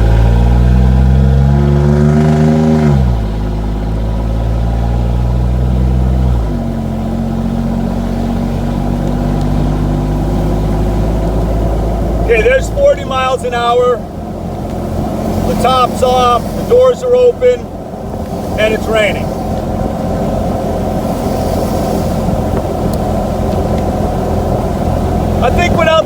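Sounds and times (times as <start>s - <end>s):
engine accelerating through open exhaust: 0.0s - 26.0s.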